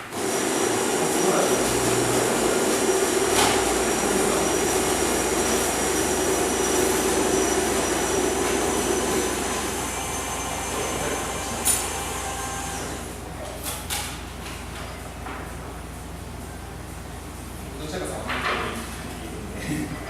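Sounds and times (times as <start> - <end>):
whirring machine: 0.0 - 13.2.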